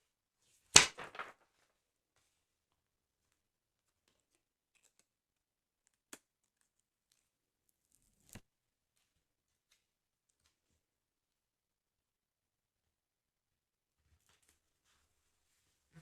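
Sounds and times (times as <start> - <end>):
paper album crinkling: 0.8 - 1.4.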